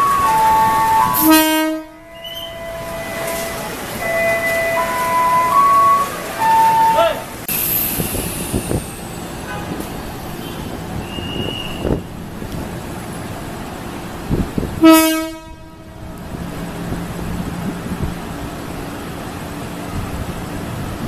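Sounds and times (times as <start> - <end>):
train horn blast: 0.0 - 7.2, 14.8 - 16.2
train rolling rumble: 0.0 - 21.0.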